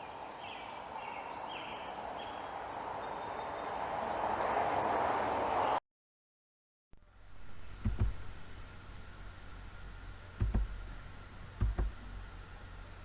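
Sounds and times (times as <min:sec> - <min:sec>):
outdoor background hiss: 0:07.0 - 0:13.0
birds chirping: 0:07.1 - 0:13.0.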